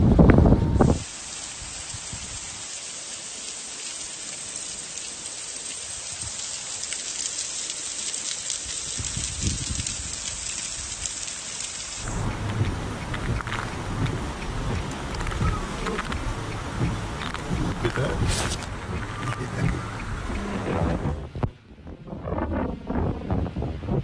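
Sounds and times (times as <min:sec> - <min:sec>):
heavy rain: 0:00.0 - 0:24.0.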